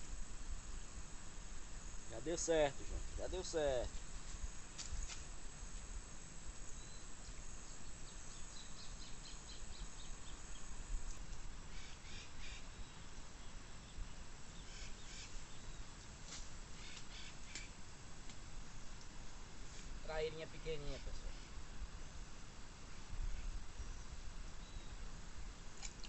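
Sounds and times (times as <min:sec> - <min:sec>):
birds chirping: 0:06.6 - 0:10.8, 0:11.7 - 0:16.0.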